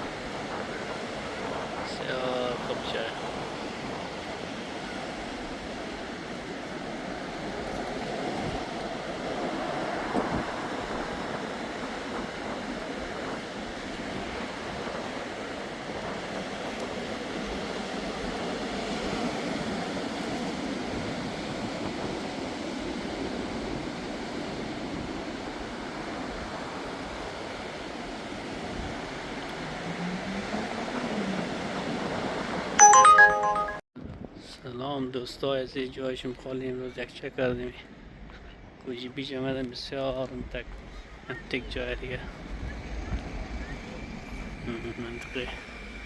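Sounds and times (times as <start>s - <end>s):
steady outdoor rushing noise: 0.0s - 32.8s
ringing chime: 32.8s - 33.8s.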